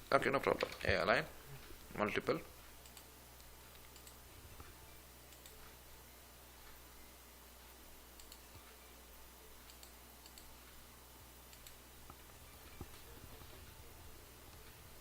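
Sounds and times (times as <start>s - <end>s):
low steady hum: 0.0s - 15.0s
faint computer mouse clicks: 8.2s - 8.8s, 9.6s - 10.5s, 11.5s - 13.0s.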